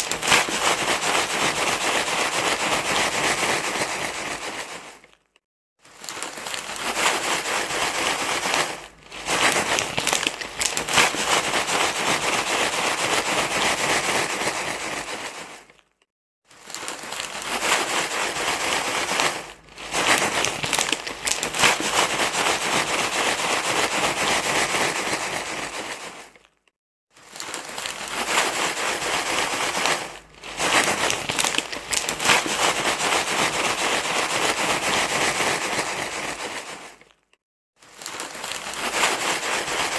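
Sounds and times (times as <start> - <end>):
crinkling rustling noise: 0.0 - 39.9.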